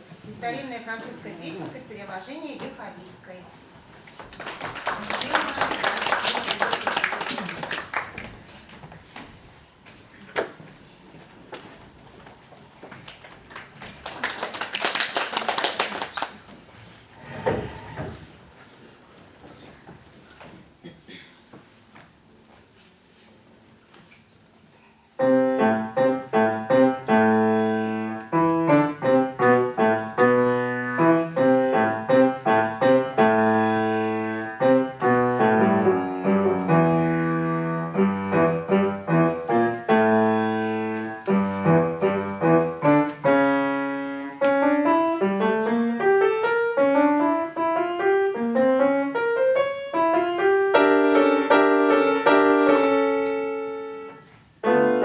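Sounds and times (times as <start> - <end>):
solo piano beginner's piece: 25.2 - 55.0.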